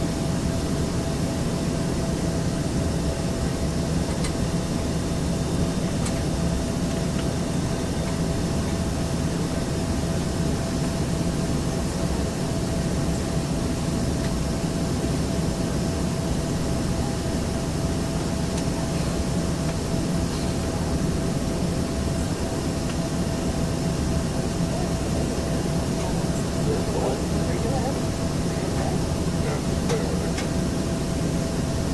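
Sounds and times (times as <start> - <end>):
aircraft cabin engine hum: 0.0 - 31.9.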